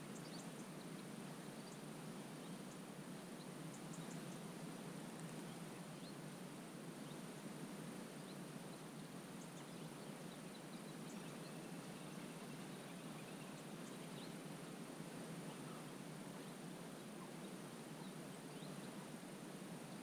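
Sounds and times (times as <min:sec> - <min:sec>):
faint bird chirps: 0:00.0 - 0:01.8, 0:15.4 - 0:19.0.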